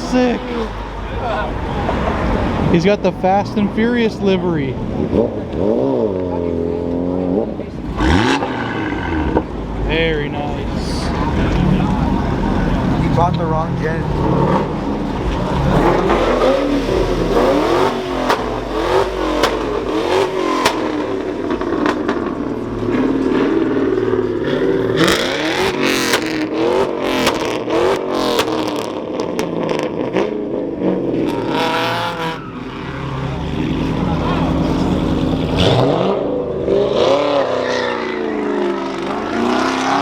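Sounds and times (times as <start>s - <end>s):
car engines revving: 0.0s - 40.0s
sharp cracks: 15.4s - 22.4s, 25.0s - 28.9s.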